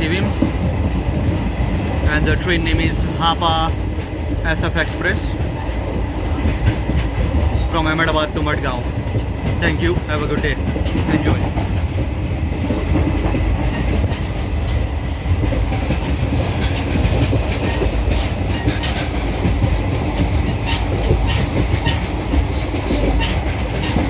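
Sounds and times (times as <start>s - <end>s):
train wheels rumbling: 0.0s - 24.0s
wheels clicking over rail joints: 9.0s - 24.0s.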